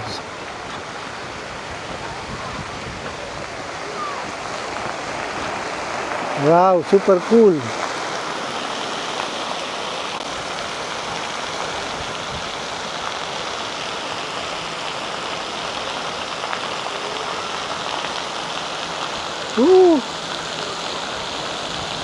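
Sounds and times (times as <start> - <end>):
water spraying and splashing: 0.0 - 22.0
short rising and falling cry: 19.6 - 20.1.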